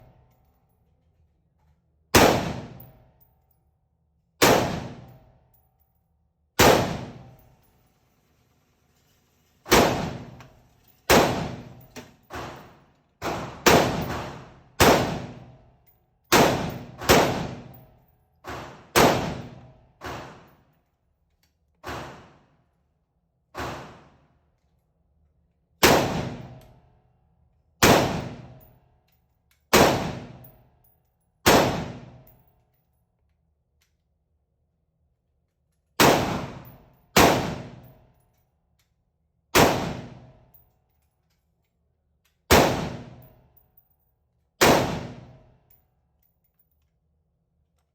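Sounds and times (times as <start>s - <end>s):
rifle gunshots: 2.2s - 2.8s, 4.4s - 5.1s, 6.6s - 7.3s, 9.7s - 10.4s, 11.1s - 11.8s, 13.2s - 15.4s, 16.3s - 17.7s, 18.6s - 19.6s, 25.8s - 26.5s, 27.8s - 28.5s, 29.7s - 30.4s, 31.5s - 32.2s, 36.0s - 37.9s, 39.6s - 40.2s, 42.5s - 43.2s, 44.6s - 45.3s.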